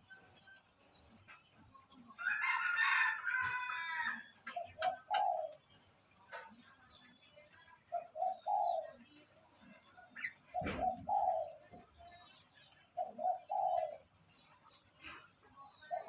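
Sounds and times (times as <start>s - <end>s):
small birds chirping: 0.0s - 16.0s
dove cooing: 4.5s - 5.7s, 7.9s - 9.1s, 10.2s - 12.0s, 12.9s - 14.2s, 15.8s - 16.0s.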